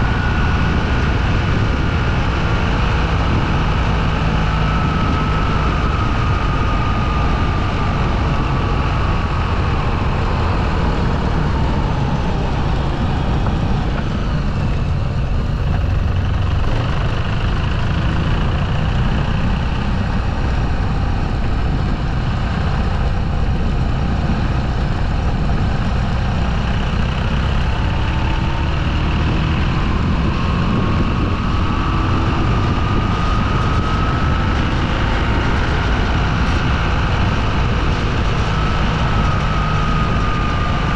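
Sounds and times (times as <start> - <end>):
motorcycle engine rumble: 0.0 - 40.9
wind noise: 0.0 - 40.9.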